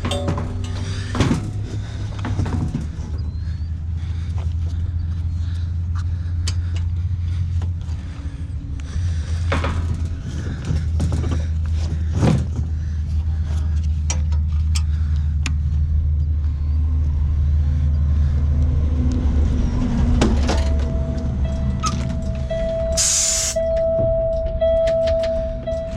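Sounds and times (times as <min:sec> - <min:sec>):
metallic clicks and knocks: 0:00.0 - 0:03.0
steady whine: 0:00.0 - 0:25.9
truck diesel engine running: 0:00.0 - 0:25.9.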